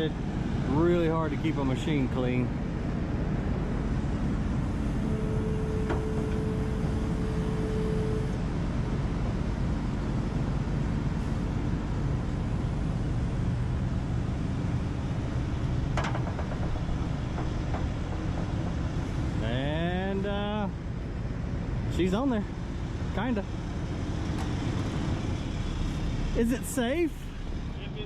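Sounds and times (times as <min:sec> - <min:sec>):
excavator diesel engine running: 0:00.0 - 0:28.0
steady whine: 0:00.0 - 0:28.0.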